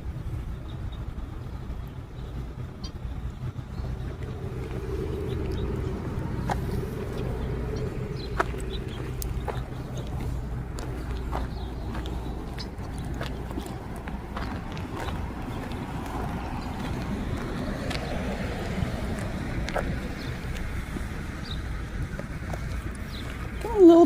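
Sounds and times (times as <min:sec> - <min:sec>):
vehicle engine rumble: 0:00.0 - 0:24.0
high chirps and clicks: 0:03.6 - 0:18.8.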